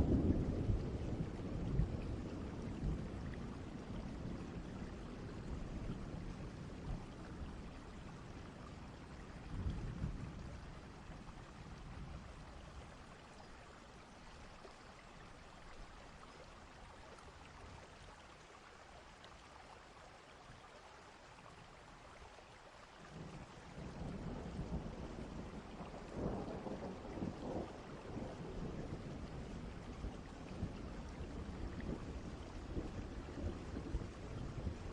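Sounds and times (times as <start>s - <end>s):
steady rain: 0.0s - 34.9s
distant thunder rumbling: 23.2s - 34.9s.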